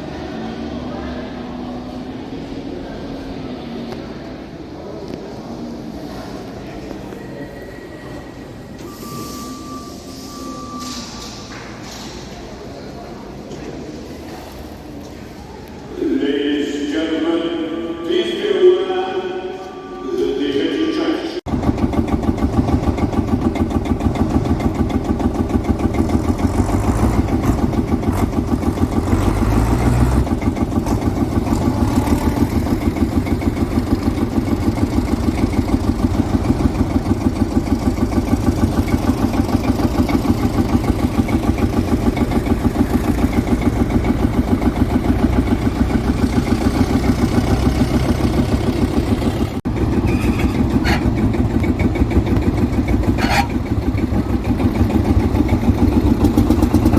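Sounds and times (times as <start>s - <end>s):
tractor diesel engine thumping: 21.5s - 56.9s.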